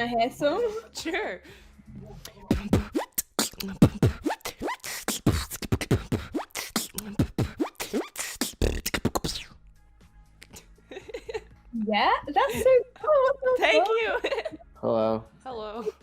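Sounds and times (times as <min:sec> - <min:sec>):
beatboxing: 0:02.2 - 0:09.6.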